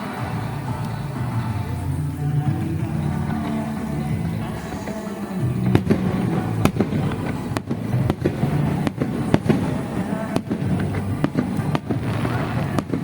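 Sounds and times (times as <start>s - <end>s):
fireworks bursting with sharp bangs: 0.0s - 13.0s
fireworks crackle and rumble: 0.0s - 13.0s.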